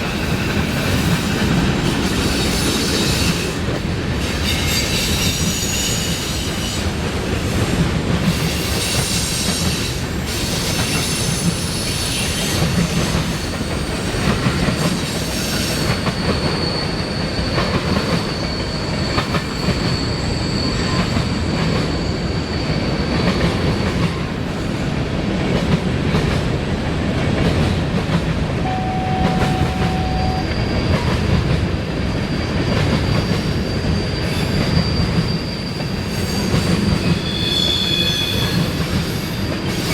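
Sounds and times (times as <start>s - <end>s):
freight train cars rolling: 0.0s - 39.9s
high wheel squeal: 15.2s - 23.3s, 32.3s - 39.9s.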